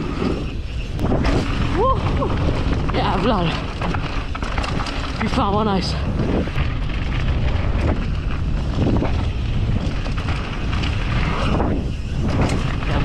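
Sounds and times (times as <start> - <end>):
bike knocking over bumps: 0.0 - 13.0
wind buffeting microphone: 0.0 - 13.0.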